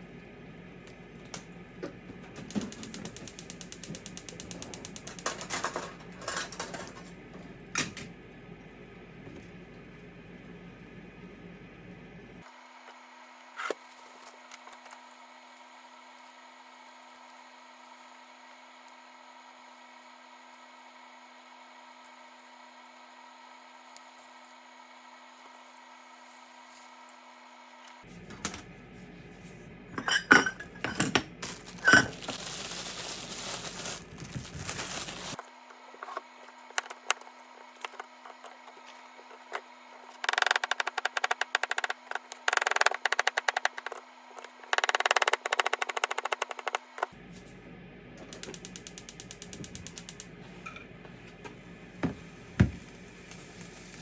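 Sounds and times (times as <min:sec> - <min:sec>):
dishes and utensils clinking: 0:05.4 - 0:07.1, 0:30.0 - 0:32.3.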